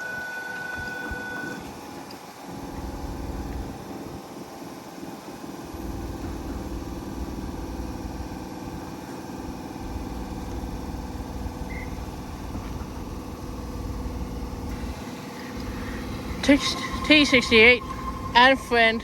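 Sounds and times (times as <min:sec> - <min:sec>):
electric train humming: 0:02.4 - 0:19.0.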